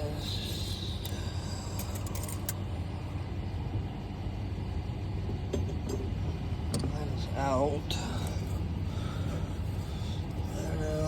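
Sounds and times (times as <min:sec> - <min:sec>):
low machinery hum: 0:00.0 - 0:11.0.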